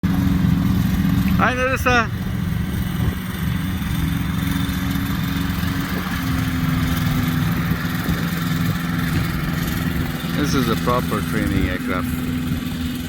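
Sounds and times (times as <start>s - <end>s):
aircraft engine and propeller idling: 0.0s - 13.0s.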